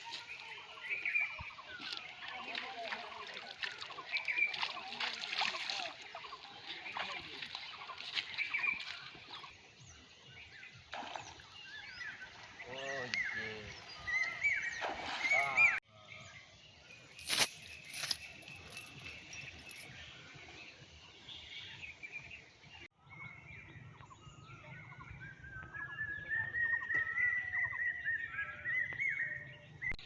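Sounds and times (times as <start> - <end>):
birds chirping and calling: 0.0 - 15.8
faint outdoor background noise: 0.0 - 30.0.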